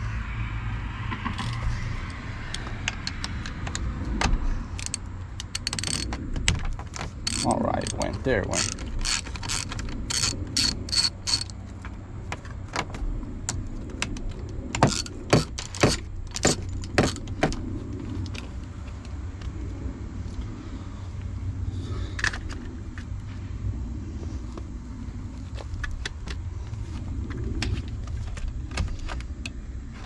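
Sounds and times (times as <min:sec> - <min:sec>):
steady low hum: 0:00.0 - 0:30.0
hand tools clinking against metal: 0:07.3 - 0:11.6.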